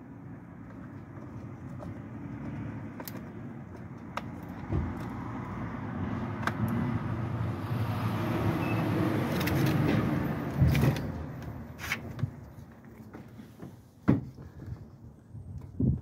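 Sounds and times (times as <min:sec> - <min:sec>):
thump: 0:14.0 - 0:14.4.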